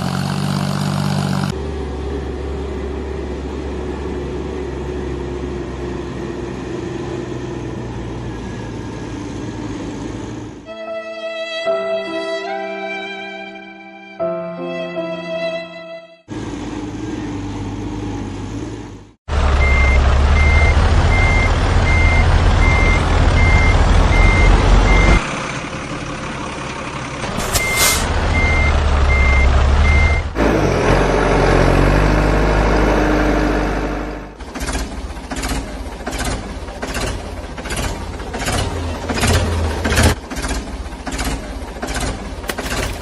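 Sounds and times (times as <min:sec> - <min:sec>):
heavy vehicle engine running: 0:00.0 - 0:10.8, 0:16.3 - 0:43.0
reversing alarm beeping: 0:19.6 - 0:25.2, 0:27.4 - 0:30.3.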